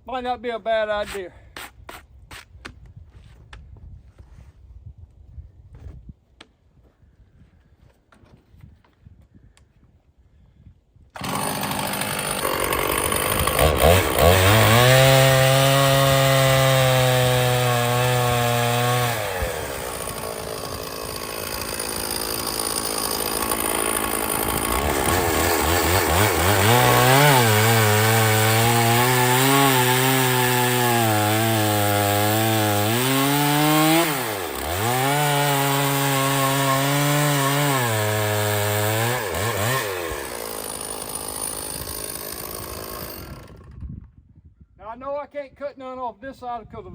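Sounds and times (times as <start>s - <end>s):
chainsaw cutting through log: 11.2s - 44.0s.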